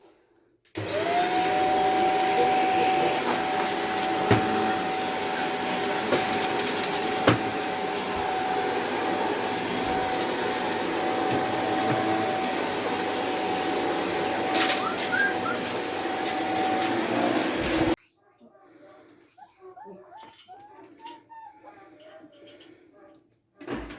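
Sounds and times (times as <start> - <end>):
vacuum cleaner motor whining: 0.8 - 18.0.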